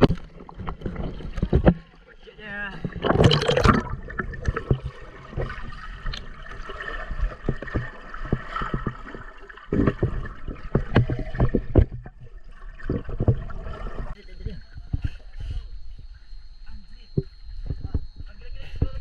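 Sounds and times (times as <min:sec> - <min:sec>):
water gurgling and sloshing: 0:00.0 - 0:19.0.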